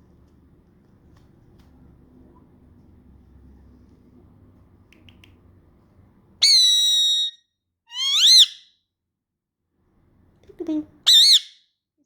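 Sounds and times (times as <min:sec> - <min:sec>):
parrot whistling: 0:06.4 - 0:08.6, 0:11.1 - 0:11.6
faint parrot chirps: 0:06.4 - 0:08.8, 0:11.1 - 0:11.7.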